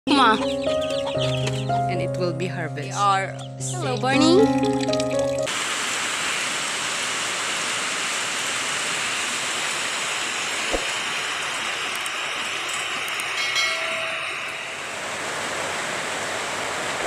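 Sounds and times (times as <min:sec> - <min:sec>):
heavy rain falling: 0:04.2 - 0:12.0.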